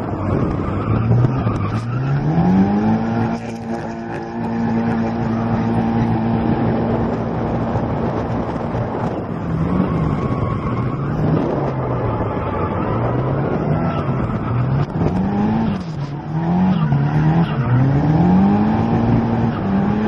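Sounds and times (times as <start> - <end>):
car engine revving: 0.0 - 20.0
wind buffeting microphone: 0.0 - 20.0.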